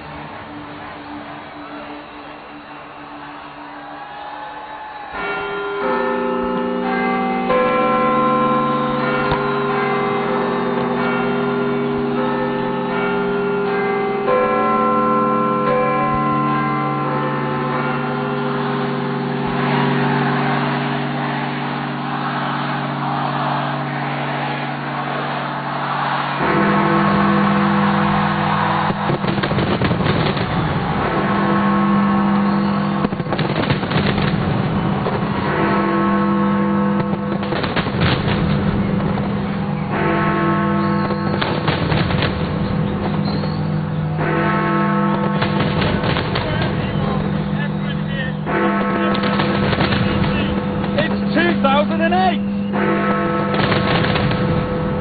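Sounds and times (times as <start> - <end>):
clock tower bells ringing: 0.0 - 55.0
fireworks crackling and banging: 26.3 - 55.0.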